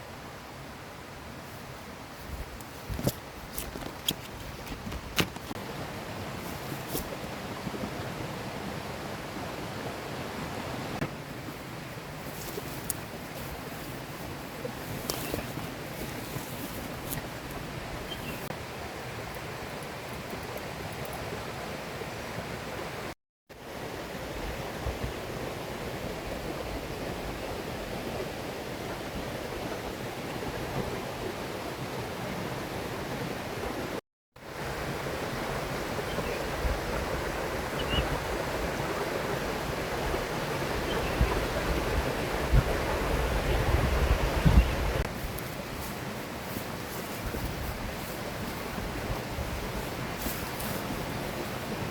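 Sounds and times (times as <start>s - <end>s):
river rushing: 0.0s - 51.9s
wind rumble on microphone: 1.6s - 18.5s, 34.6s - 51.9s.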